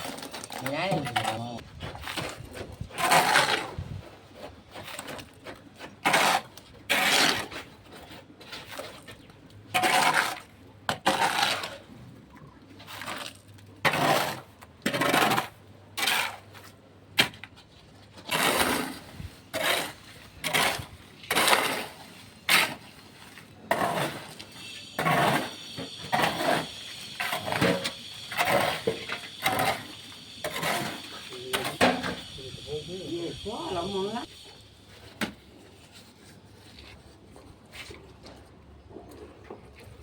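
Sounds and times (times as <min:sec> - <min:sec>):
hand tools scraping concrete mix: 0:00.0 - 0:12.0, 0:12.7 - 0:40.0
steady high whine: 0:24.4 - 0:35.6.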